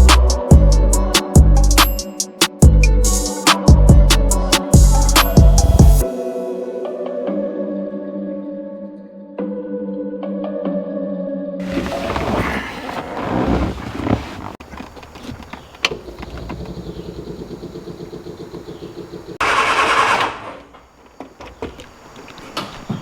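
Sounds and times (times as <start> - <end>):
engine cranking by starter: 11.6 - 20.8
loud burst of engine noise: 19.4 - 20.6.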